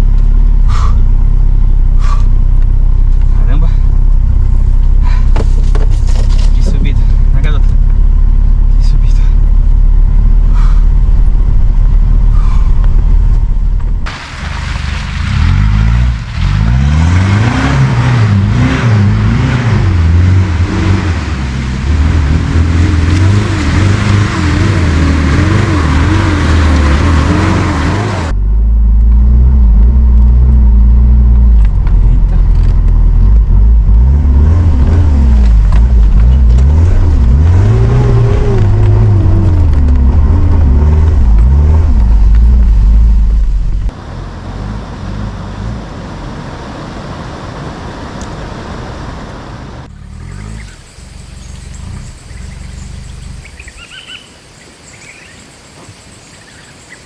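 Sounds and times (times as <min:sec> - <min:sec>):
off-road vehicle engine revving: 0:00.0 - 0:54.3
wide hiss: 0:14.1 - 0:15.8.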